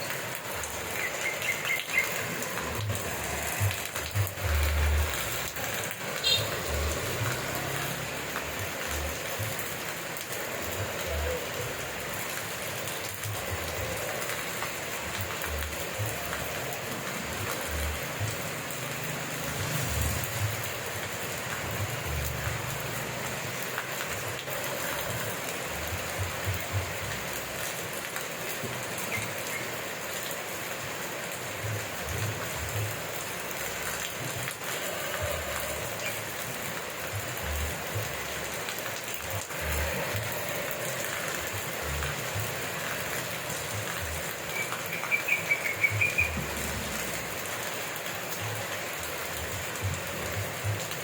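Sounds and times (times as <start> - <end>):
steady rain falling: 0.0 - 51.0
low thuds of raindrops: 31.2 - 51.0.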